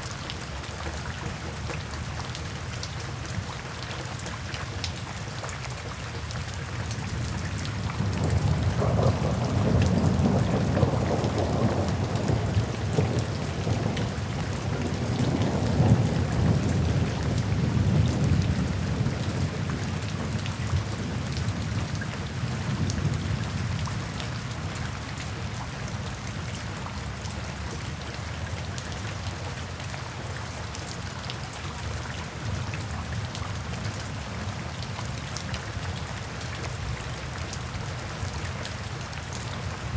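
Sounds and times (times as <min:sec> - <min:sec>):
steady rain pattering: 0:00.0 - 0:39.9
low rumble of thunder: 0:07.1 - 0:25.4.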